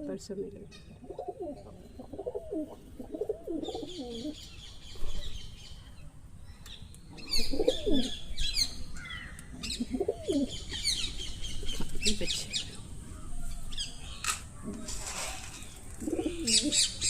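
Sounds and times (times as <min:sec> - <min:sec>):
birds chirping rapidly: 0:00.2 - 0:17.0
bird cooing: 0:00.9 - 0:05.2, 0:07.2 - 0:08.2, 0:09.6 - 0:13.8, 0:15.9 - 0:17.0.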